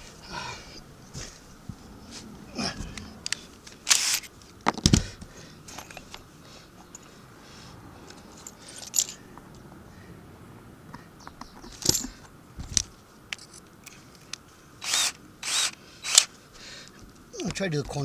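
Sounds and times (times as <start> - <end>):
metallic clicks of screws and tools: 3.2 - 5.0
power drill: 3.9 - 4.2, 14.8 - 16.3.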